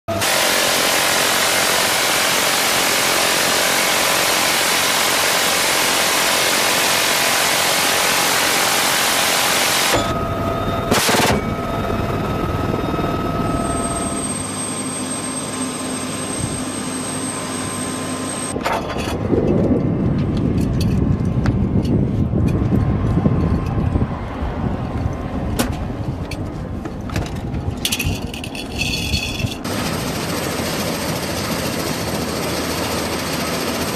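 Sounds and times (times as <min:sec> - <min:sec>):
turbine tones: 0:00.1 - 0:25.3
helicopter roar: 0:00.1 - 0:33.9.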